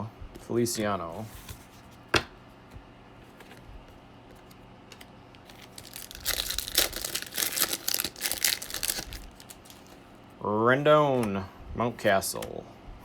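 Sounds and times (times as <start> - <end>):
card pack wrapper crinkling: 4.9 - 10.0.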